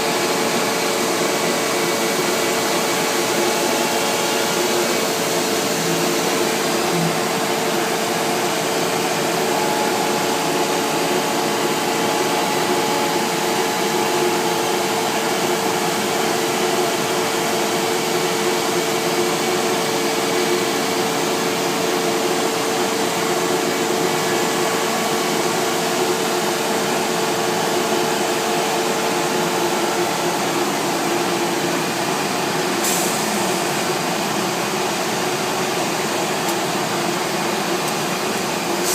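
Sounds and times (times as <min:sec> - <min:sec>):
cnc router whirring: 0:00.0 - 0:38.8.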